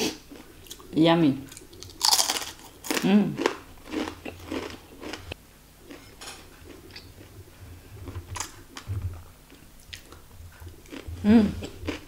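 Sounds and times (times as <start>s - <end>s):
crunchy chewing: 1.5s - 5.3s, 9.5s - 12.0s.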